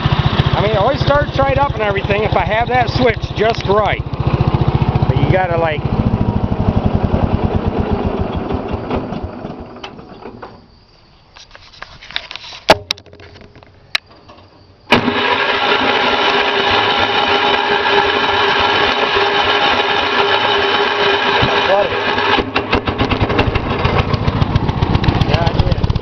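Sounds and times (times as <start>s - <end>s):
engine running: 0.0s - 10.2s, 14.9s - 26.0s
sharp clicks: 3.4s - 4.3s.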